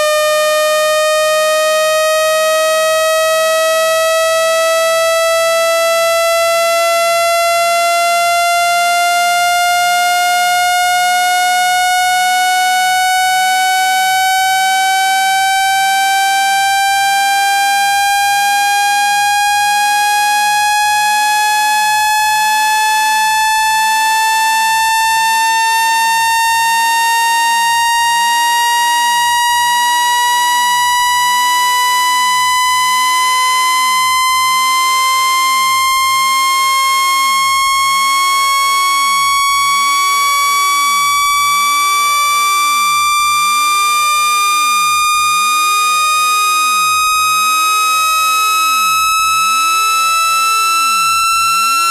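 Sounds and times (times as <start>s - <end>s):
buzzy rising electronic tone: 35.5s - 51.9s.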